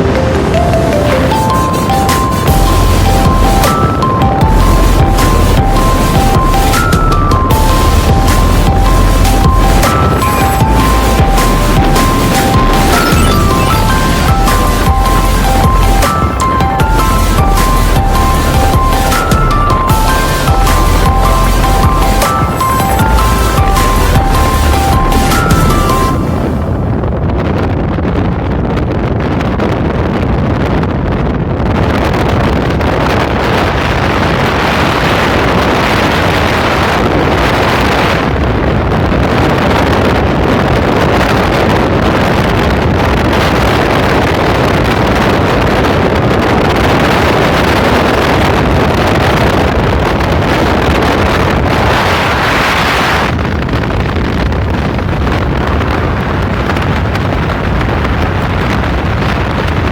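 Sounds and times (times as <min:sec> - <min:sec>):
vehicle road noise: 0:00.0 - 0:27.5
wind rushing on microphone: 0:00.0 - 0:59.9.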